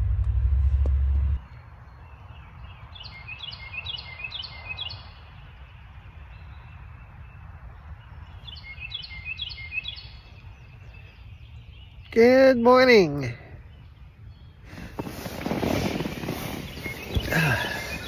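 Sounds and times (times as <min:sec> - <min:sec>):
low hum: 0:00.0 - 0:01.6
steady low rumble: 0:00.0 - 0:01.6
songbird whistling: 0:03.0 - 0:05.2, 0:08.4 - 0:12.2, 0:16.3 - 0:18.0.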